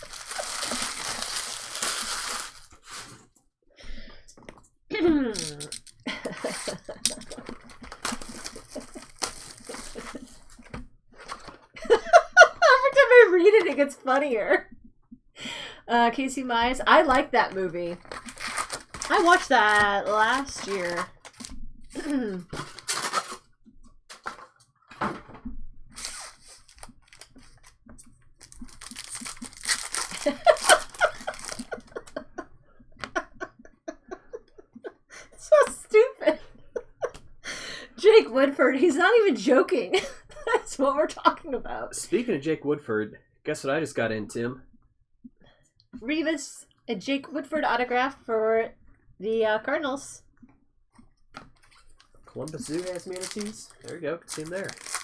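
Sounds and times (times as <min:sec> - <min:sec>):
trading cards and wrappers crinkling: 0:00.0 - 0:03.2, 0:05.4 - 0:11.6, 0:17.1 - 0:23.5, 0:25.9 - 0:27.8, 0:28.4 - 0:31.9, 0:51.4 - 0:55.0.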